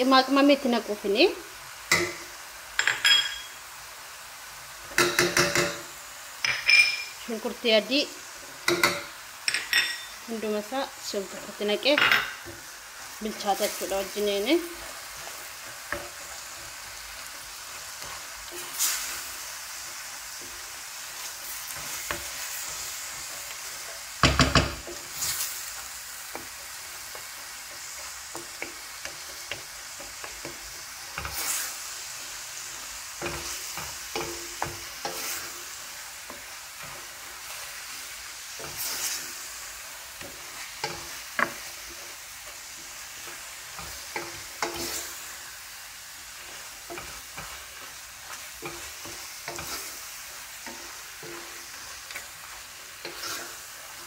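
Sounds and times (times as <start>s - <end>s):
food sizzling in a pan: 0.0s - 54.0s
spoon stirring and scraping pan: 1.8s - 3.6s, 4.6s - 54.0s
spoon knocking on pan: 4.9s - 7.1s, 8.6s - 10.2s, 24.2s - 25.0s.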